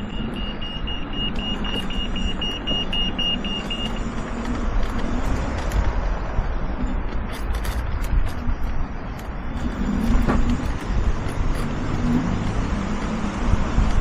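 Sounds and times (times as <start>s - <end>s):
rapid high beeping: 0.0s - 4.4s
electric scooter motor hum: 0.0s - 14.0s
wind and road noise: 0.0s - 14.0s.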